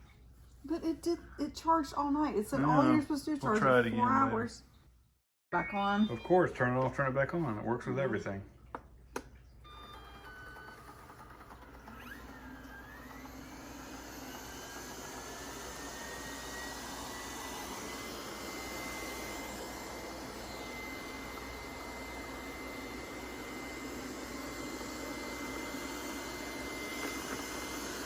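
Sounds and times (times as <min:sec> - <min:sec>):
robot vacuum start-up beep: 0:09.6 - 0:11.3
robot vacuum fan whirring: 0:09.6 - 0:28.0.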